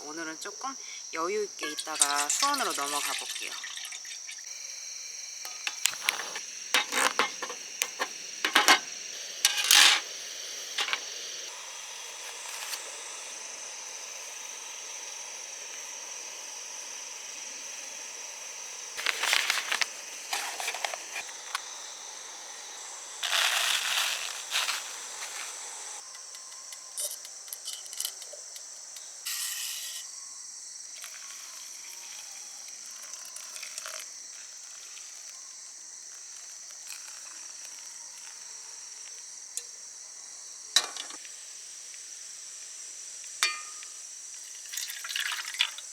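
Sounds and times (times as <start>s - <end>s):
insects trilling: 0.0s - 45.9s
rustling: 5.4s - 10.1s, 10.8s - 11.1s, 19.0s - 21.7s, 23.2s - 26.0s.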